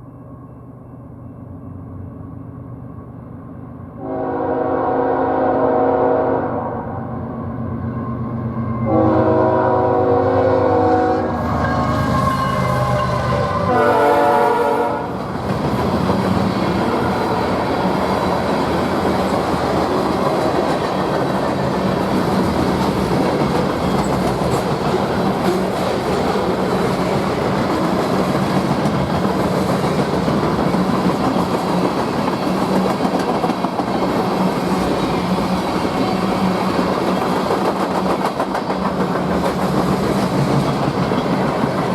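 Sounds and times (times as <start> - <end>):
train wheel and rail noise: 0.0 - 41.9
locomotive air horn blasts: 4.0 - 6.9, 8.9 - 15.2.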